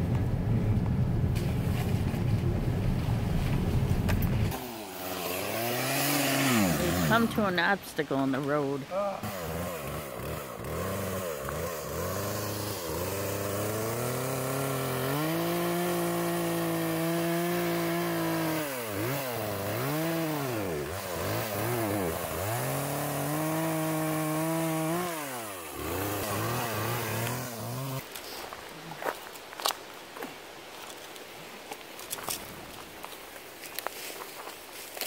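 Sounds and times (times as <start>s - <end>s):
chainsaw cutting wood: 4.5s - 8.5s, 9.2s - 28.2s.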